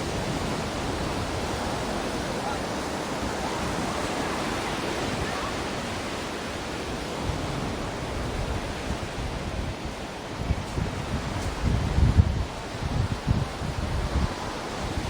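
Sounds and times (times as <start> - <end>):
ocean surf washing: 0.0 - 15.0
low gusty rumbling: 7.2 - 15.0.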